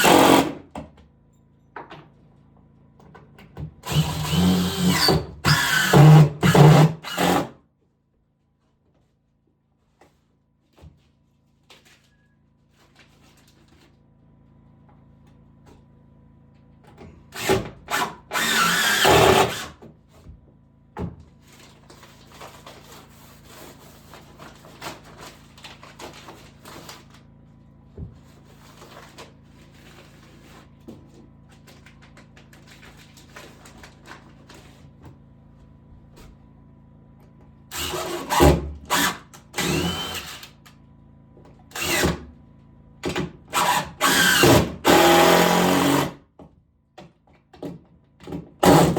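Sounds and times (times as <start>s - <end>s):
power drill running: 0.0s - 0.6s, 3.8s - 7.5s, 17.3s - 19.8s, 37.7s - 40.5s, 41.7s - 42.2s, 43.5s - 46.2s, 48.6s - 48.9s
scraping and handling sounds: 21.3s - 27.3s, 28.1s - 35.0s.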